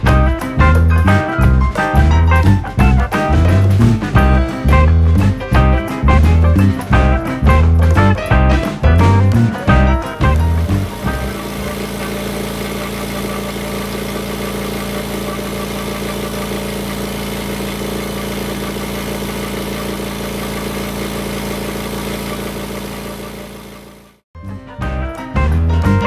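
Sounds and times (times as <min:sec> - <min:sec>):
machine humming: 0:09.8 - 0:24.2.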